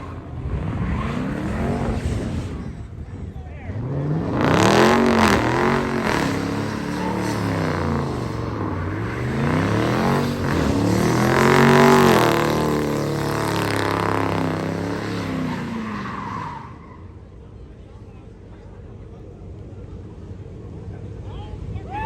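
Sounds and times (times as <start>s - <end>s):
car engine revving hard: 0.0s - 2.8s, 3.7s - 16.8s.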